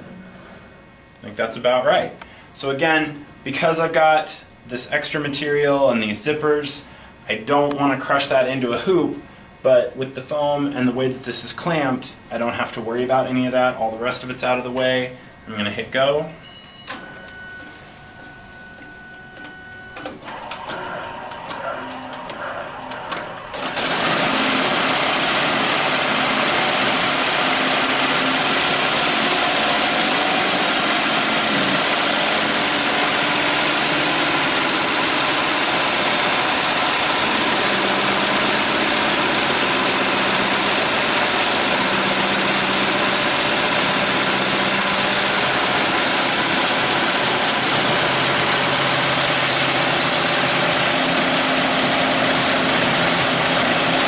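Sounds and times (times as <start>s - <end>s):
embroidery machine rattling: 20.1s - 54.0s.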